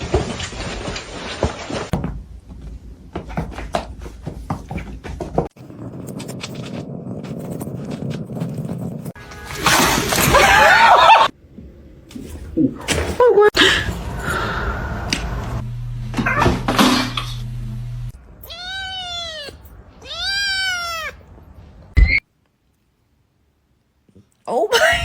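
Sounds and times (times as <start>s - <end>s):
cat meowing: 18.4s - 21.3s.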